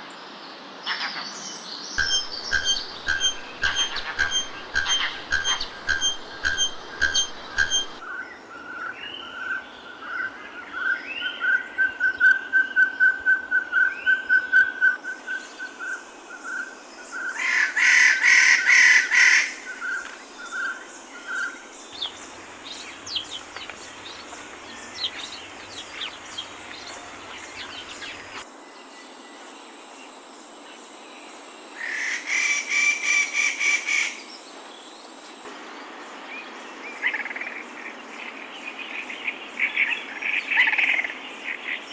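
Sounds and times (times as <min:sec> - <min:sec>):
background hiss: 0:00.0 - 0:41.9
loud rasping bird trills: 0:02.0 - 0:08.0
repeated whistled bird notes: 0:02.0 - 0:08.0
short bird chirps: 0:02.0 - 0:08.0.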